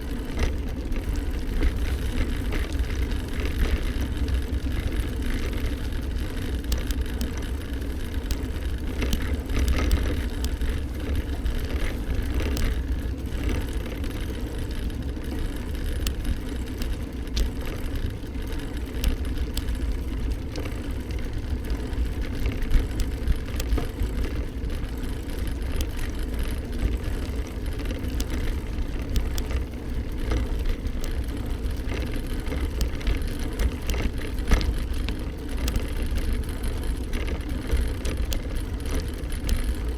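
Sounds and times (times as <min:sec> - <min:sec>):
bike road noise: 0:00.0 - 0:39.9
small clicks and rattles: 0:00.0 - 0:39.9.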